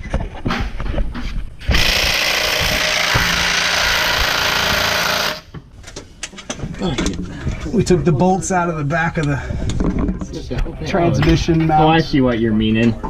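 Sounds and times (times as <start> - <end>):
impact wrench hammering: 1.7 - 5.6.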